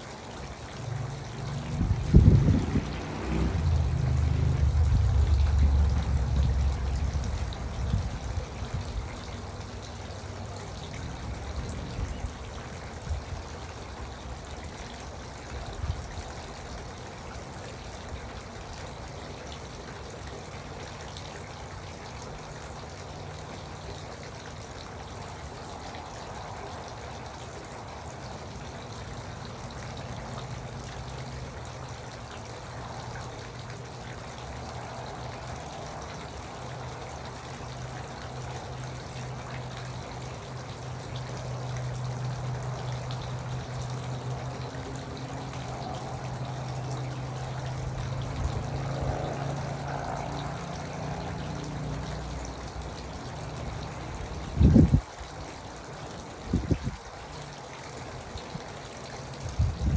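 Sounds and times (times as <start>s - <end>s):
water fountain trickling: 0.0s - 59.9s.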